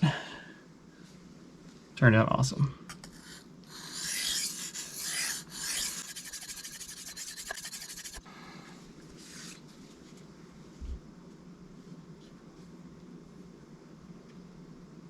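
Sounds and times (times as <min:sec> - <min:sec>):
knife stroked across sharpening stone: 0:03.0 - 0:08.2.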